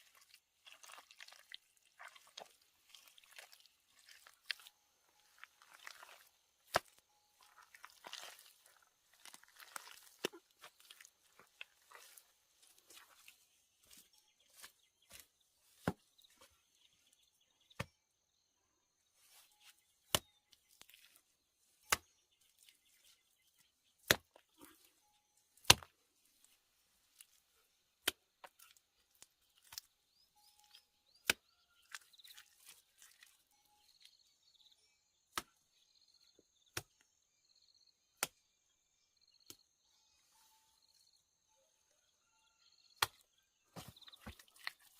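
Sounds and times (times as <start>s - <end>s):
blade chopping wood: 25.6s - 25.9s.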